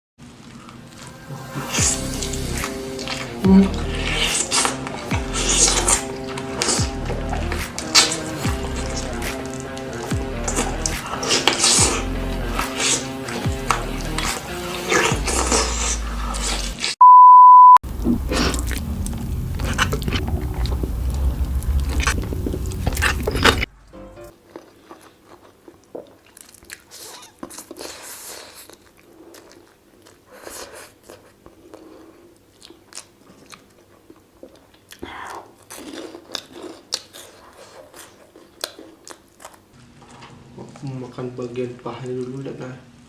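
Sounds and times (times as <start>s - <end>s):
crunchy biting and chewing: 0.5s - 16.9s, 17.9s - 39.8s
music with heavy bass: 1.8s - 2.8s, 3.4s - 4.4s, 5.0s - 6.0s, 6.8s - 7.7s, 8.4s - 9.5s, 10.1s - 11.0s, 11.8s - 12.7s, 13.4s - 16.4s
beep tone: 17.0s - 17.8s.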